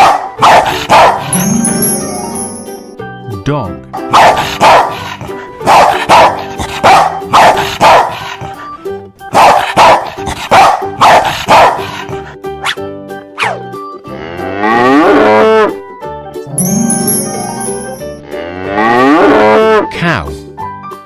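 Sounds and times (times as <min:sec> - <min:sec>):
dog barking: 0:00.0 - 0:01.3, 0:04.1 - 0:08.4, 0:09.3 - 0:12.8, 0:13.4 - 0:13.6
background music: 0:00.0 - 0:21.0.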